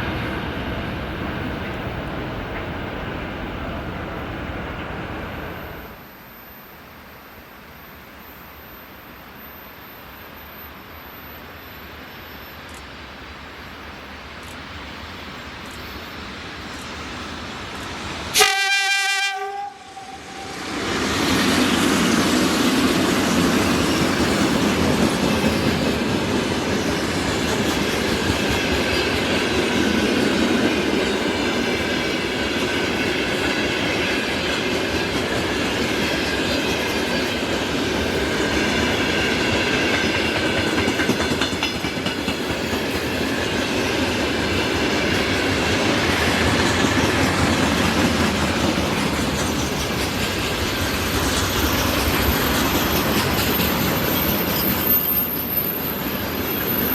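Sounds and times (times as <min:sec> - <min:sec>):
train wheels clattering over rails: 0:20.7 - 0:56.9.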